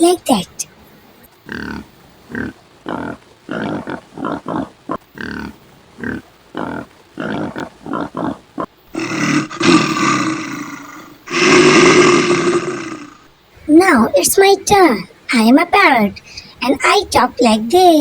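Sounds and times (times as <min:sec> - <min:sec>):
bear grunting: 0:01.4 - 0:17.4
bear roaring: 0:01.5 - 0:14.8.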